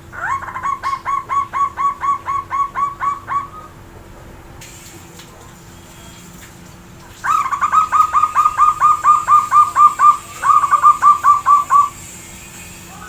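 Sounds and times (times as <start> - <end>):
dove cooing: 0.0 - 3.8, 7.0 - 12.2.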